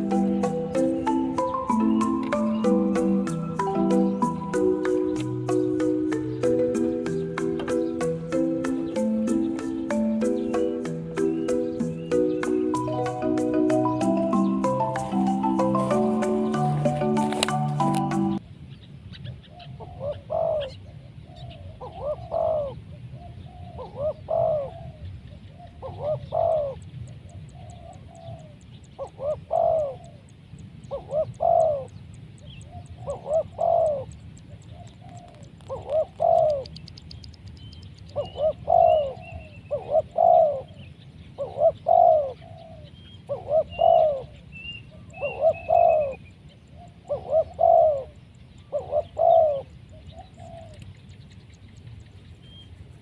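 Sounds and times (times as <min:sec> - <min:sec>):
dove cooing: 0:00.0 - 0:18.4, 0:19.6 - 0:32.0, 0:32.6 - 0:36.8, 0:38.1 - 0:50.9
small bird chirping: 0:00.0 - 0:20.8, 0:25.3 - 0:52.9.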